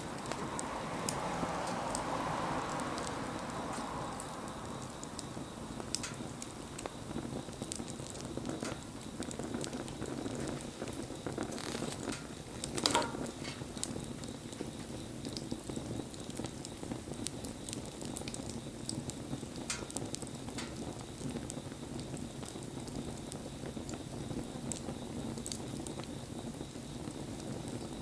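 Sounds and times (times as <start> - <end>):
wood fire hissing and crackling: 0.0 - 28.0
loud pop of fire: 0.2 - 23.1.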